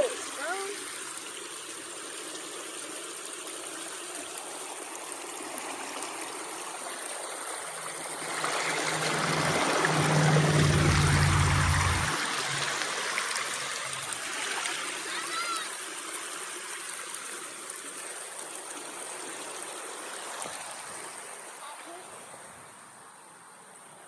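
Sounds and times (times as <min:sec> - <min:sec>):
creek water running over rocks: 0:00.0 - 0:24.0
low rumble: 0:08.2 - 0:12.2.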